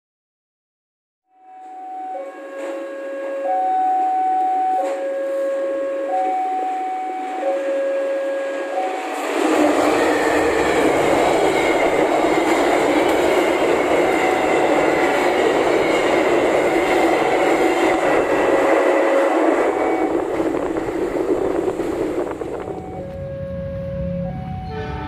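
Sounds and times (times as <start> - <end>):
two-note tone: 1.3 - 9.1, 22.6 - 25.0
train wheels rushing on rails: 4.7 - 25.0.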